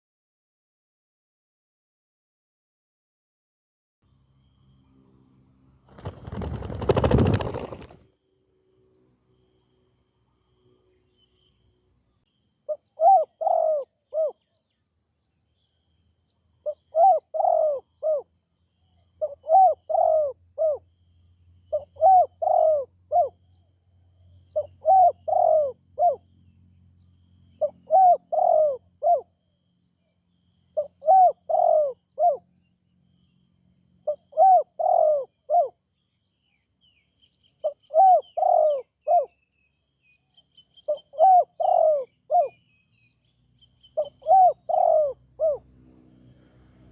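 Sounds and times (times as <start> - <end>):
dove cooing: 6.0 - 8.0, 12.7 - 14.4, 16.7 - 18.2, 19.2 - 20.8, 21.7 - 23.4, 24.6 - 26.2, 27.6 - 29.3, 30.8 - 32.4, 34.1 - 35.8, 37.6 - 39.3, 40.9 - 42.6, 44.0 - 45.6.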